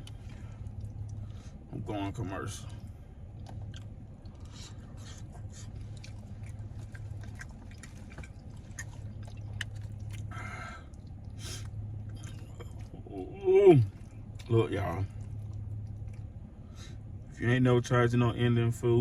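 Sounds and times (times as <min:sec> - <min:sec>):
person chewing food: 0:00.0 - 0:01.6, 0:02.6 - 0:17.0
low hum: 0:00.0 - 0:19.0
lip smacks: 0:02.7 - 0:13.0, 0:13.8 - 0:17.0.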